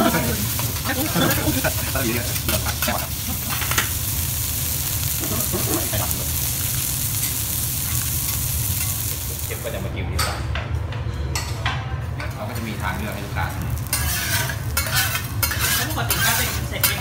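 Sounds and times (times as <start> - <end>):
food sizzling on griddle: 0.0 - 9.9, 12.3 - 17.0
metal spatulas scraping and clacking: 13.8 - 17.0.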